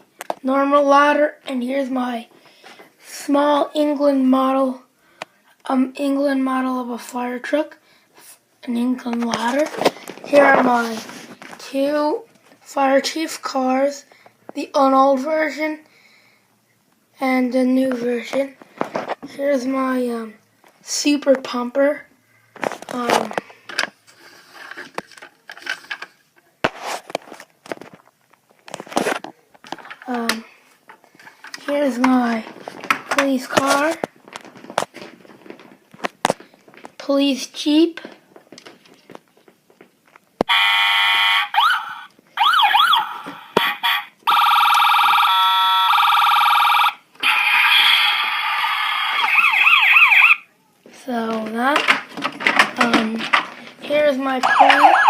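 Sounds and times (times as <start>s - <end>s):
rustling: 9.1s - 11.6s, 22.4s - 37.0s
toy electronic siren: 40.5s - 50.5s, 54.4s - 55.0s.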